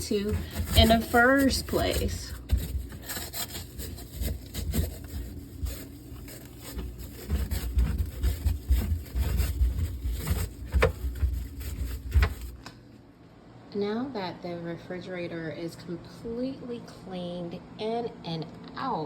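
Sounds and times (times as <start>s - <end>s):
brush scrubbing: 0.0s - 12.6s
knocks and bumps: 6.8s - 12.6s.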